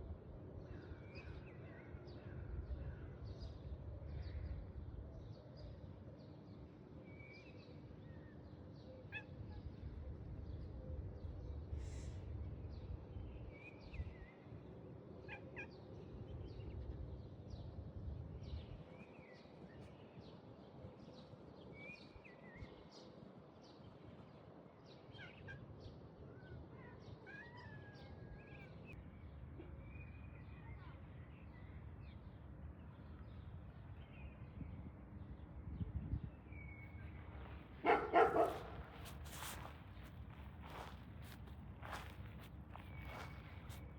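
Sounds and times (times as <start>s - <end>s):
faint low wind rumble: 0.0s - 24.8s, 28.2s - 43.9s
birds chirping: 36.9s - 43.9s.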